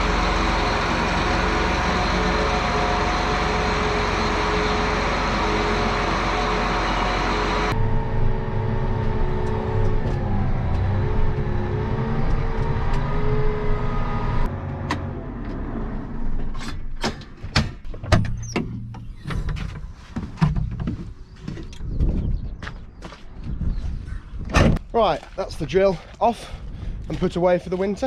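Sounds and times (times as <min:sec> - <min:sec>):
wavering whine: 0:00.0 - 0:14.5
tractor engine running: 0:00.0 - 0:16.8
sharp metallic clanks and knocks: 0:16.6 - 0:21.0.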